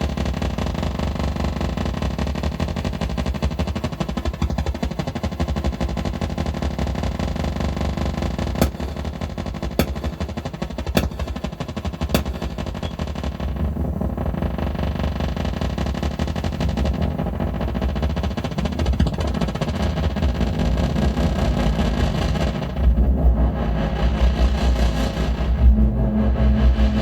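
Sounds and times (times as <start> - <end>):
rattling synthesizer noise pulse: 0.0 - 7.5, 8.2 - 27.0
sharp clicks: 8.6 - 13.4
synthesizer bass drone: 21.6 - 27.0.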